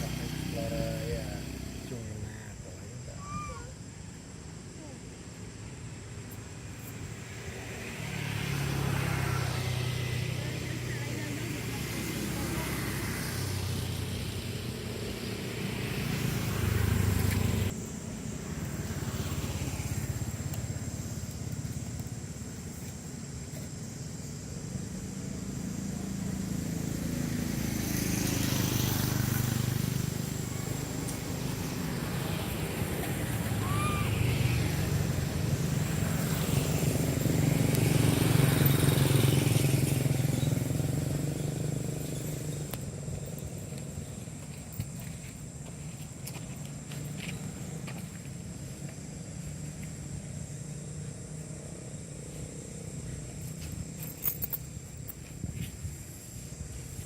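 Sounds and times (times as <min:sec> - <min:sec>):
vehicle engine passing: 0:07.1 - 0:21.5, 0:24.8 - 0:44.3.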